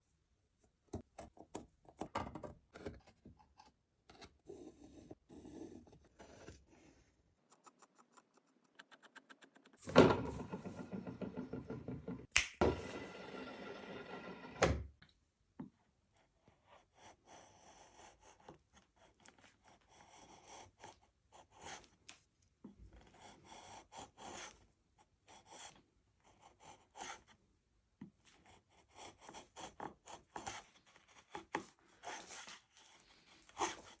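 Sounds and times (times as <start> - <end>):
wood knocks and scrapes: 9.8 - 15.0.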